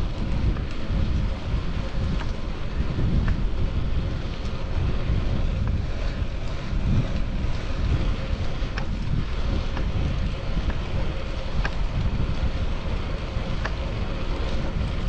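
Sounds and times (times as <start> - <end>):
wind buffeting microphone: 0.0 - 15.0
faint clicks: 5.7 - 15.0.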